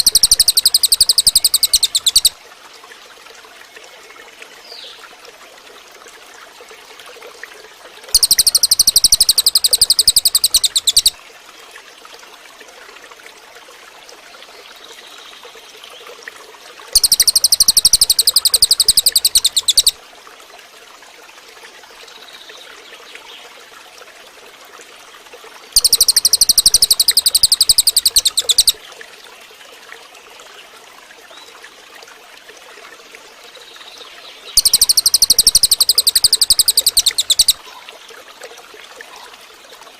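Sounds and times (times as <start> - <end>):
bird rattling trill: 0.0 - 2.4, 8.1 - 11.1, 17.0 - 20.0, 25.8 - 28.8, 34.6 - 37.6.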